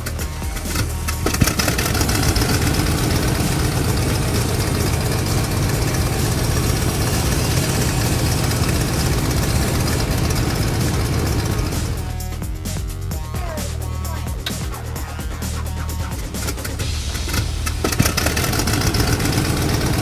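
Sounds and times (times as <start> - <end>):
toy helicopter rotors whirring: 0.0 - 12.3, 13.4 - 20.0.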